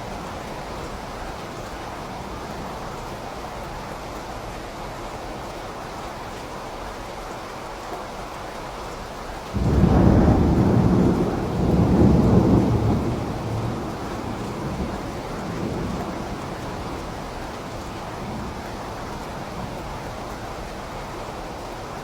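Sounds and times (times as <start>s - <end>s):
steady rain: 0.0s - 22.0s
thunder rumbling: 9.5s - 20.2s.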